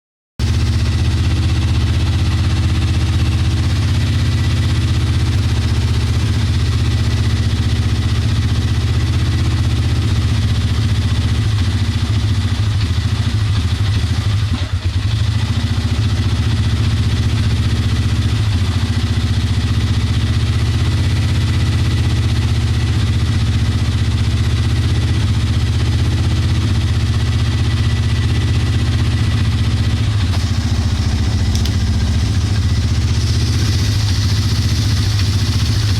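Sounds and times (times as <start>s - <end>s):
atv engine idling roughly: 0.4s - 35.9s.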